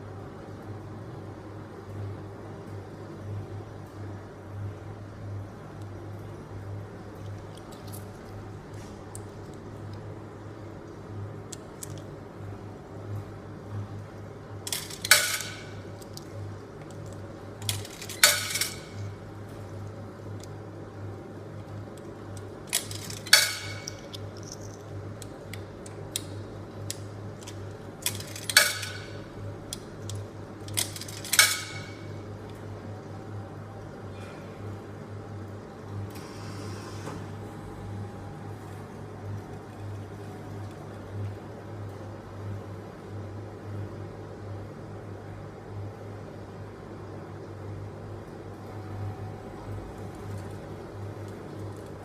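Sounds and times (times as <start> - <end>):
steady low hum: 0.0 - 52.0
coins clinking into coin slot: 14.7 - 16.2, 17.6 - 19.2, 22.7 - 25.0, 27.4 - 29.2, 30.0 - 32.2.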